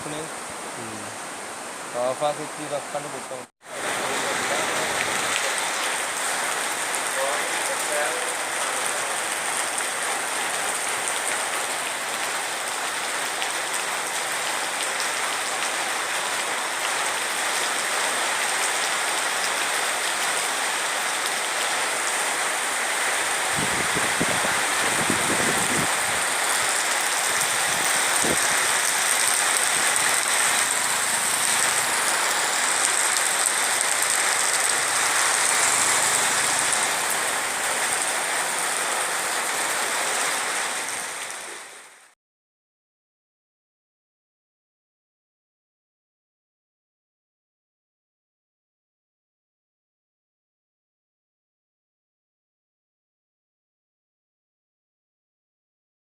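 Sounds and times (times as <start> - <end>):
water hissing: 24.6 - 37.6.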